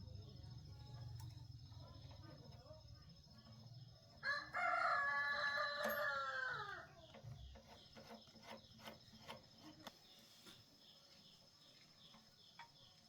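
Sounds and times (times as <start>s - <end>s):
rooster crowing: 4.2s - 6.9s.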